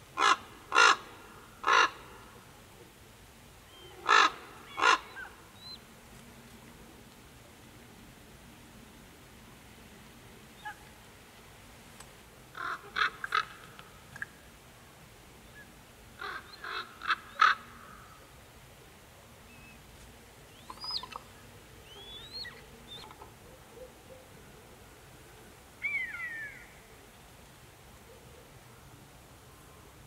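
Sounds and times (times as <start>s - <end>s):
birds cawing: 0.2s - 2.1s, 4.0s - 5.4s, 12.6s - 13.6s, 16.2s - 18.1s
thin whistled bird calls: 20.5s - 23.1s, 25.8s - 26.9s.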